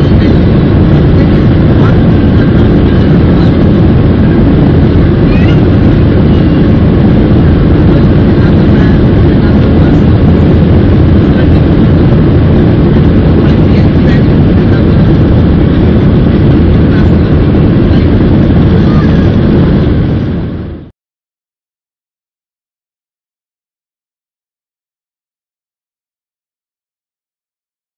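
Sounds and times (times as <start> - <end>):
airplane cabin engine rumble: 0.0 - 20.9.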